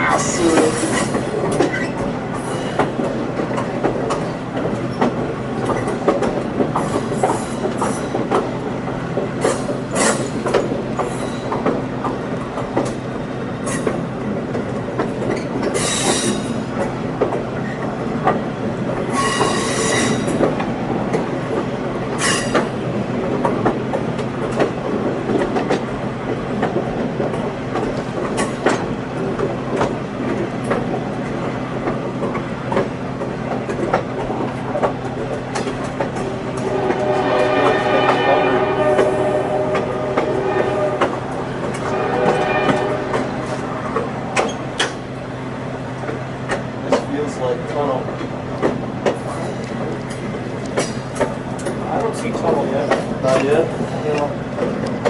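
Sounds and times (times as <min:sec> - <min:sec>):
train wheels rumbling on rail: 0:00.0 - 0:55.0
steel wheel squeals: 0:19.1 - 0:20.3.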